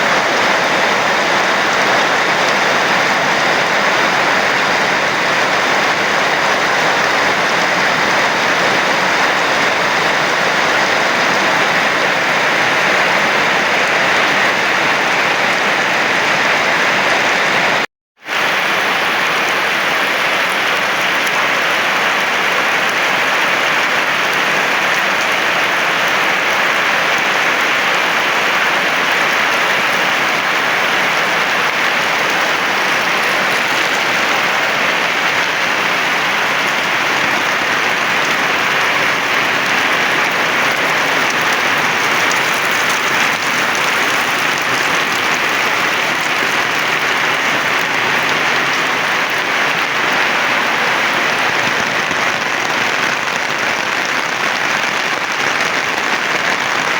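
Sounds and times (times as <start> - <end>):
heavy rain pouring: 0.0 - 56.9.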